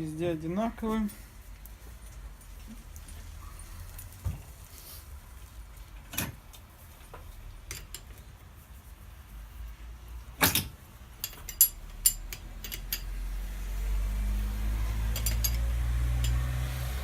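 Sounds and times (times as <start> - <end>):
sharp clicks and knocks: 10.4 - 13.1.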